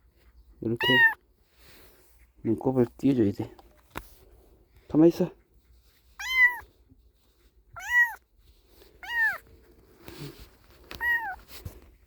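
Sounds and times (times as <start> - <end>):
kitten mewing: 0.8 - 1.2, 6.2 - 6.7, 7.8 - 8.2, 9.0 - 9.4, 10.9 - 11.5.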